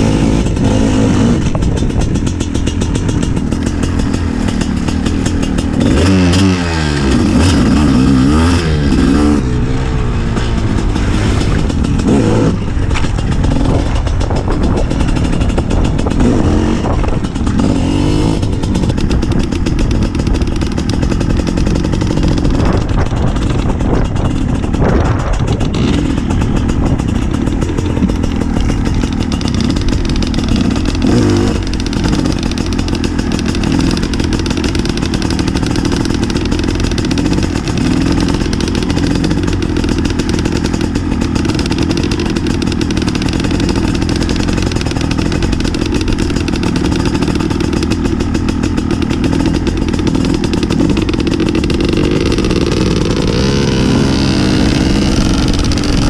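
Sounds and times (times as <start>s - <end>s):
two-stroke motorcycle engine: 0.0s - 56.0s.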